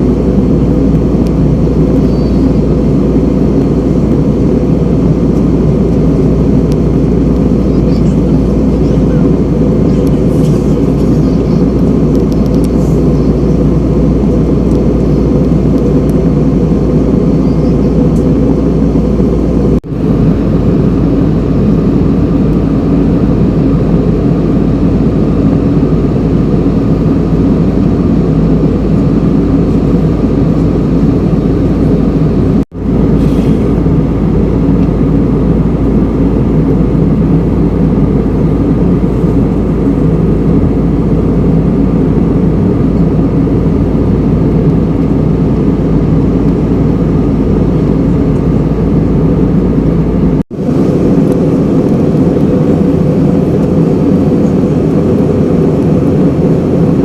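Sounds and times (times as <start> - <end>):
jet engine and airflow roar: 0.0 - 57.0
low hum: 0.0 - 57.0.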